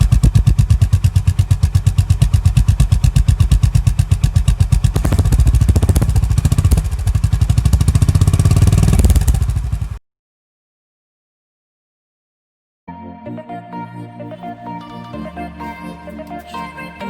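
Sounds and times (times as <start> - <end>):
motorcycle engine exhaust beat: 0.0 - 10.0.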